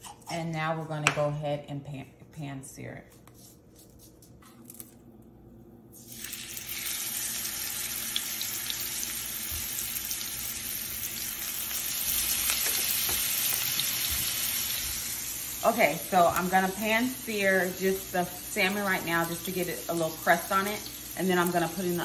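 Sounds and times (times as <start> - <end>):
fish sizzling in a frying pan: 6.0 - 22.0.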